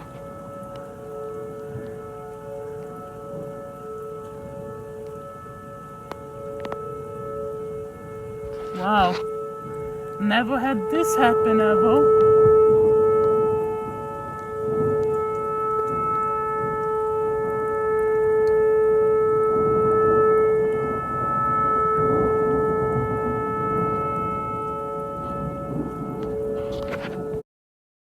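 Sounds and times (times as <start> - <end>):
warning siren steady tone: 0.0 - 27.4.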